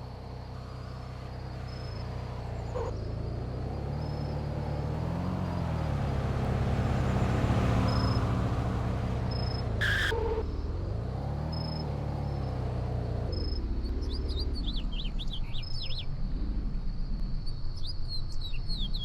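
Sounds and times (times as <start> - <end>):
car engine revving and idling: 0.0 - 17.2.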